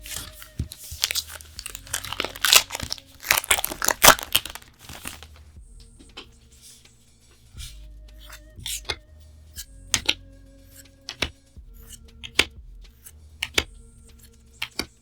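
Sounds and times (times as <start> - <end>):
plastic wrapper crinkling and tearing: 0.0 - 5.5.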